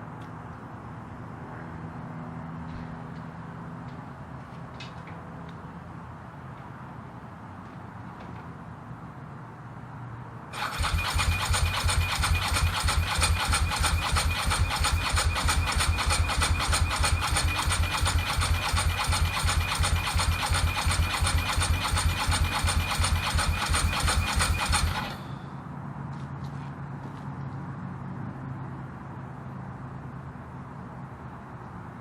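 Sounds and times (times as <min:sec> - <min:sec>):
motorcycle engine cranking: 0:10.6 - 0:25.4
high starter motor whine: 0:10.6 - 0:25.5.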